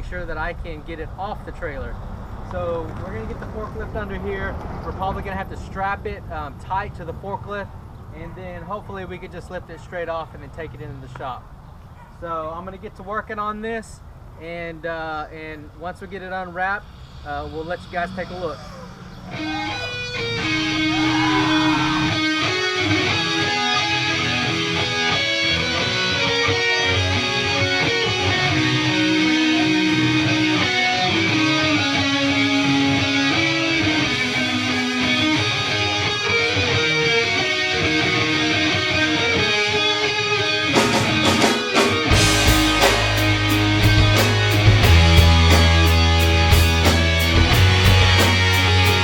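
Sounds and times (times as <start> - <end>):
guitar-led instrumental music: 18.7 - 49.0
drums and bass: 40.2 - 49.0.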